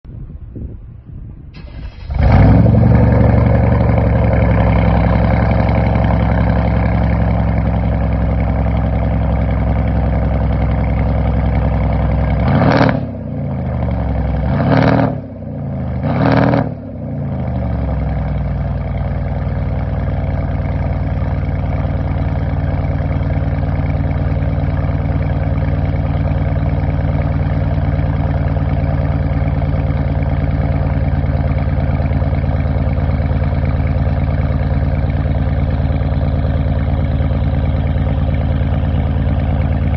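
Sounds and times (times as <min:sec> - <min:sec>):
engine revving: 0:01.6 - 0:08.3, 0:11.2 - 0:18.3
car engine idling: 0:01.6 - 0:39.9.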